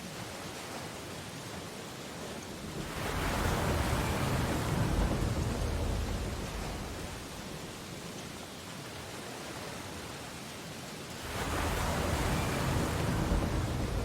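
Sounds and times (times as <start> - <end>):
wave breaking with deep rumble: 2.7 - 7.8, 11.2 - 14.0.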